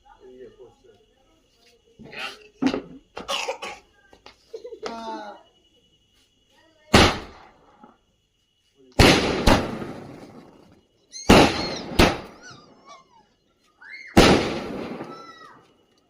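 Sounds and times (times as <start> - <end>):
firecrackers banging: 9.0 - 12.8, 14.2 - 15.7.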